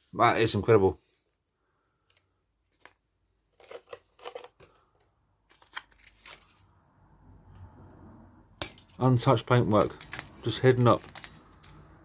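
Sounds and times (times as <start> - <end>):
tape peeling crackles: 9.8 - 12.0.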